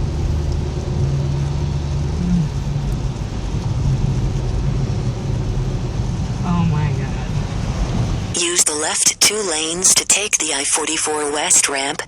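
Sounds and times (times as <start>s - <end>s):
road and engine noise in car: 0.0s - 12.0s.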